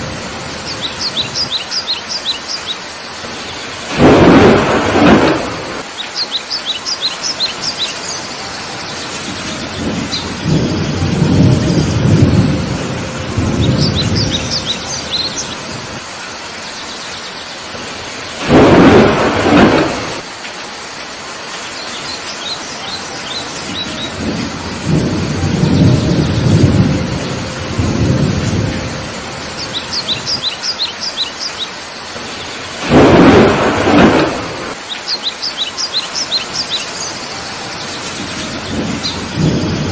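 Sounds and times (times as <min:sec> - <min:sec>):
heavy rain: 0:00.0 - 0:39.9
bird chirping: 0:00.6 - 0:04.4, 0:05.9 - 0:11.0, 0:13.6 - 0:15.8, 0:29.4 - 0:33.0, 0:34.8 - 0:39.9
low rolling thunder: 0:03.3 - 0:05.9, 0:09.0 - 0:16.1, 0:17.8 - 0:20.3, 0:23.6 - 0:30.5, 0:32.2 - 0:34.8, 0:37.8 - 0:39.9
loud thunder cracks: 0:03.9 - 0:05.9, 0:09.6 - 0:14.6, 0:18.4 - 0:20.3, 0:24.1 - 0:29.1, 0:32.8 - 0:34.8, 0:38.5 - 0:39.9.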